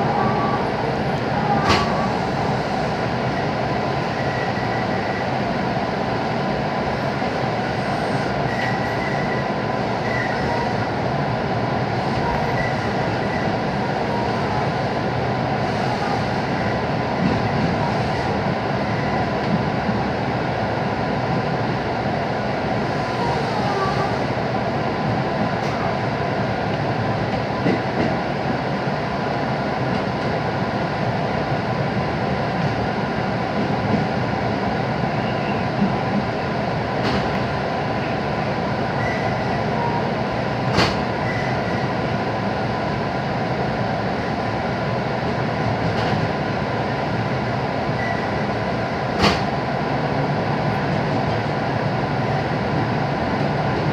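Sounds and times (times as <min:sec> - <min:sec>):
train wheels rumbling on rails: 0:00.0 - 0:53.9.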